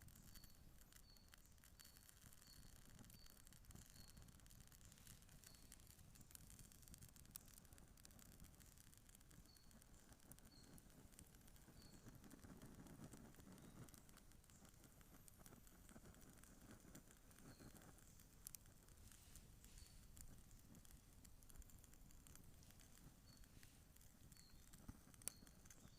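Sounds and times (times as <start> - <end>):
campfire crackling: 0.0 - 25.9
bird chirping: 0.1 - 6.3, 9.4 - 10.9, 11.6 - 12.3, 13.4 - 14.8, 18.9 - 20.6, 22.6 - 25.9.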